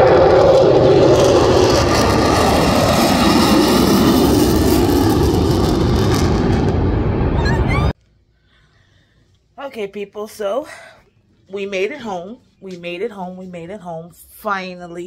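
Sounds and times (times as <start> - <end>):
jet engine roar flying past: 0.0 - 8.0.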